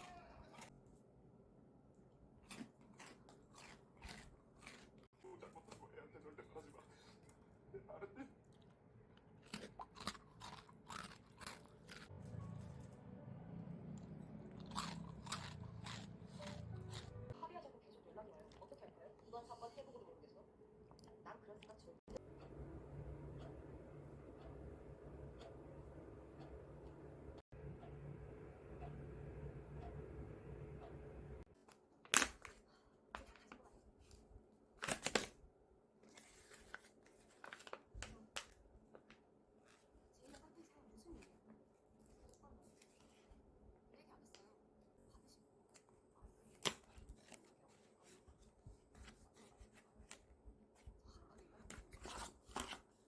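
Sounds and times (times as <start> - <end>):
crunchy food being chewed: 2.3 - 7.4, 8.4 - 12.9, 14.0 - 17.3
low steady hum: 10.5 - 31.5.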